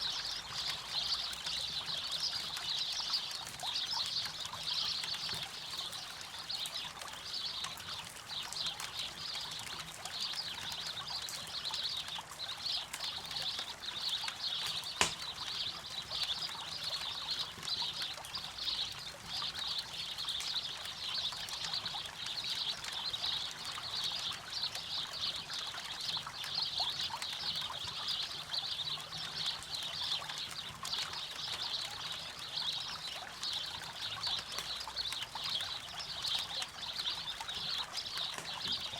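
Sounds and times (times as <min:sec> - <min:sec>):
river water running: 0:00.0 - 0:38.9
campfire pop: 0:14.6 - 0:15.7.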